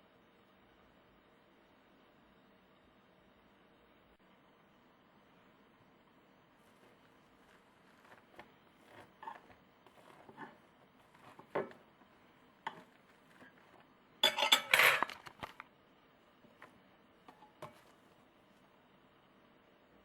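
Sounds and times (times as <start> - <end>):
dishware knocking and clinking: 14.2 - 15.2.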